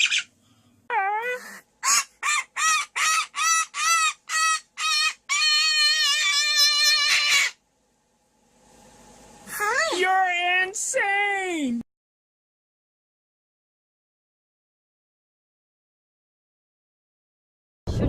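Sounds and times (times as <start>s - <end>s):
bird calling: 1.8s - 7.6s.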